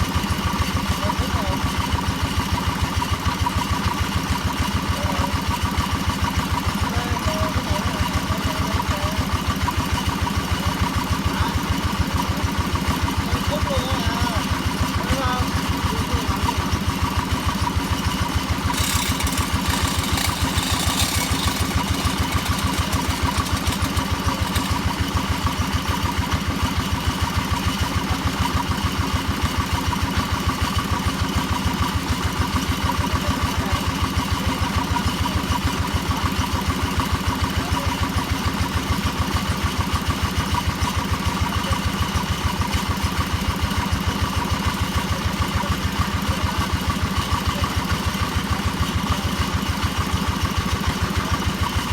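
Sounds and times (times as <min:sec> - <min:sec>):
hammer drill running: 0:17.6 - 0:26.5.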